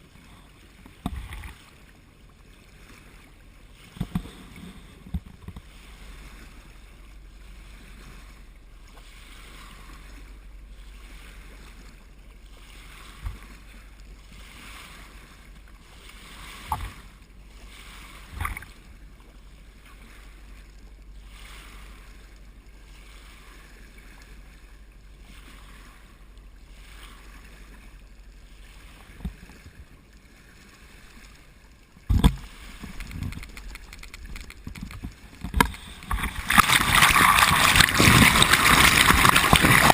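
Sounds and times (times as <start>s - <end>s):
water rushing along boat hull: 0.0s - 39.9s
short knocks or splashes: 32.0s - 39.9s.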